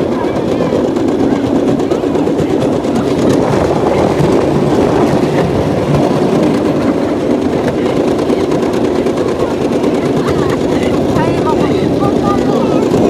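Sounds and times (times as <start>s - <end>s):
train wheels rattling on track: 0.0s - 13.0s.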